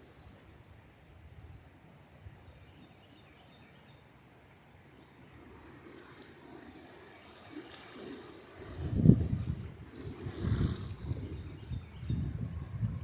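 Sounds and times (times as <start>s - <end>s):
floodwater rushing: 4.9s - 11.6s
wind buffeting microphone: 8.6s - 13.0s.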